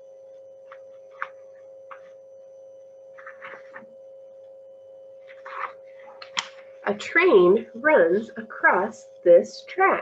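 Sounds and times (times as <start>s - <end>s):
steady high hum: 0.0s - 10.0s
book pages clicking and rustling: 0.7s - 2.1s, 3.2s - 3.9s, 5.2s - 6.6s.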